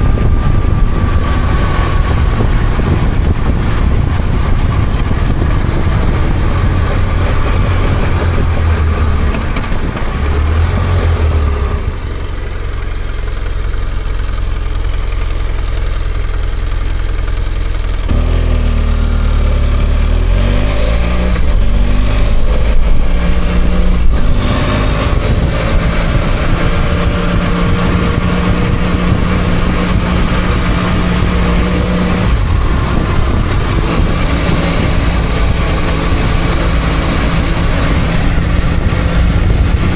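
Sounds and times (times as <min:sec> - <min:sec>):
steady rush of noise: 0:00.0 - 0:12.3, 0:20.1 - 0:39.9
motorcycle engine running: 0:00.0 - 0:39.9.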